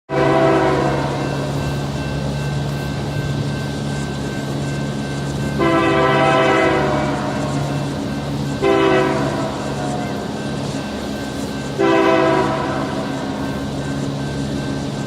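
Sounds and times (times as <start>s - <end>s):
locomotive air horn blasts: 0.1s - 1.3s, 5.6s - 7.6s, 8.6s - 10.2s, 11.8s - 13.2s
diesel locomotive drone: 0.1s - 15.0s.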